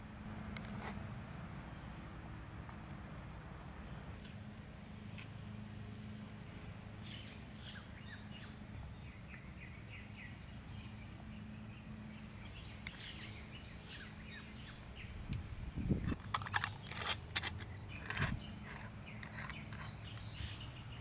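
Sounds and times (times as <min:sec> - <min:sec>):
small bird chirping: 0:07.0 - 0:16.2, 0:17.6 - 0:21.0.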